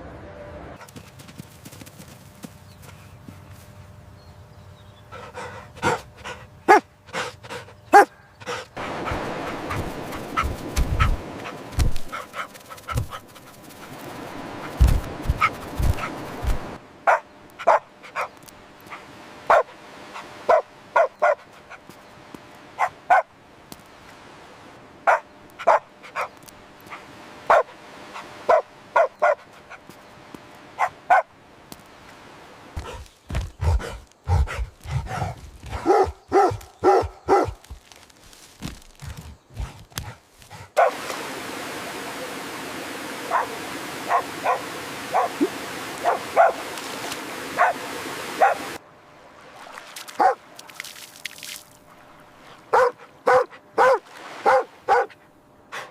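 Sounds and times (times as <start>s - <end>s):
steady background hiss: 0.0s - 55.9s.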